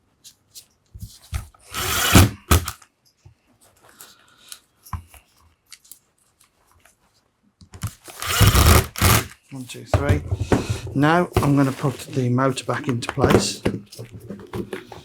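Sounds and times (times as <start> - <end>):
scraping rustle: 10.4 - 12.4.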